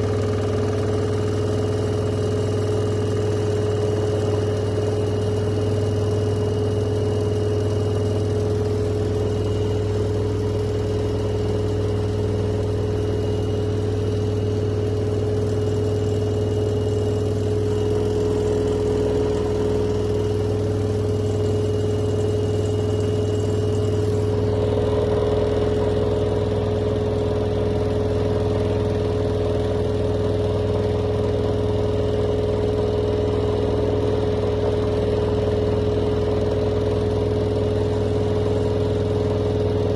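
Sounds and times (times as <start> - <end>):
washing machine running: 0.0 - 39.9.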